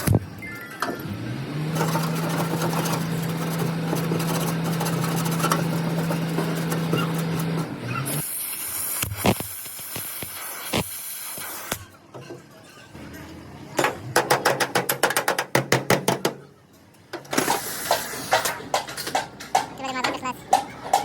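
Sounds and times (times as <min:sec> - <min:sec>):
rough grinding noise: 0:01.5 - 0:08.1.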